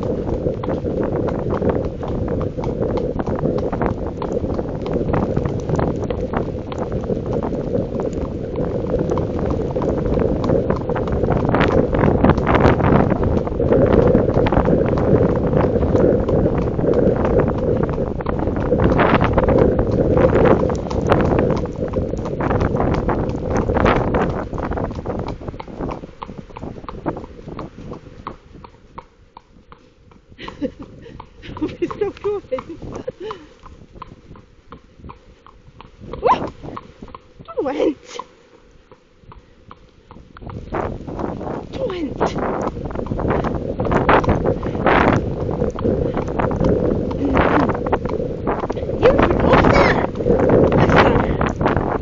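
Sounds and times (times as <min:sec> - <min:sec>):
horse hooves clip-clopping: 0:00.0 - 0:52.0
wind buffeting microphone: 0:00.0 - 0:52.0
raindrops ticking: 0:03.7 - 0:10.0.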